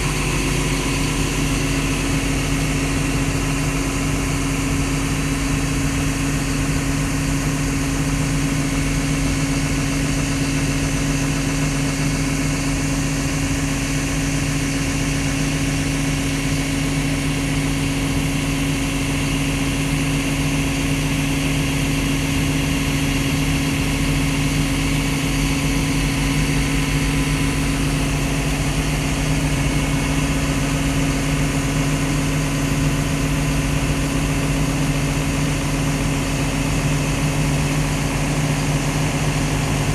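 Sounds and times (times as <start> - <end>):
diesel engine idling: 19.0 - 39.9.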